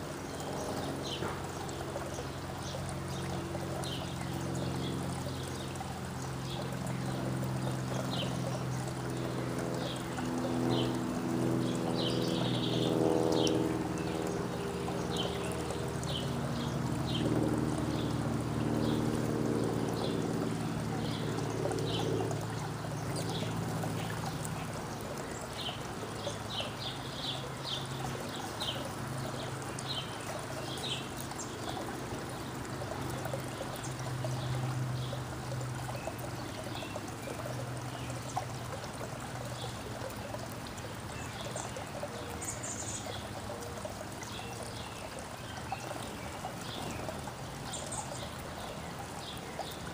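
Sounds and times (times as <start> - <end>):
small birds chirping: 11.6 - 49.9.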